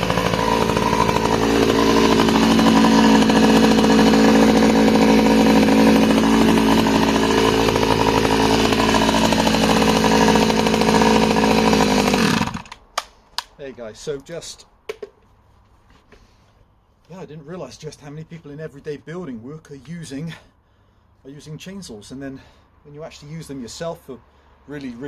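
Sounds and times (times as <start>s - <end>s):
chainsaw cutting timber: 0.0s - 12.8s.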